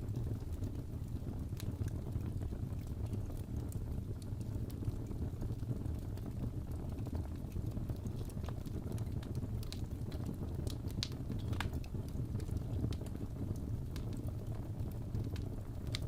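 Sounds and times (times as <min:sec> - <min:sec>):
fire flames rumbling: 0:00.0 - 0:16.0
wood fire crackles and pops: 0:00.0 - 0:16.0.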